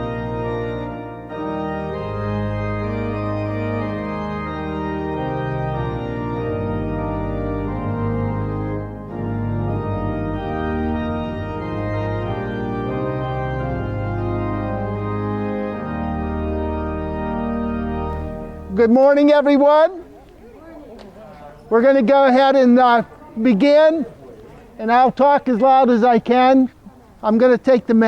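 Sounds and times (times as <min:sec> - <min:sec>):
organ playing held chords: 0:00.0 - 0:19.7.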